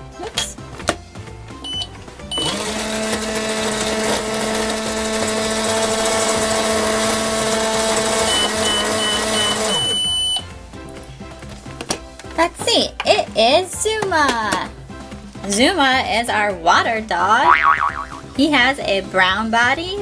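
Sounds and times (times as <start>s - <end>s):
microwave beeps: 1.6s - 2.6s, 7.8s - 10.5s
microwave oven humming: 1.8s - 10.4s.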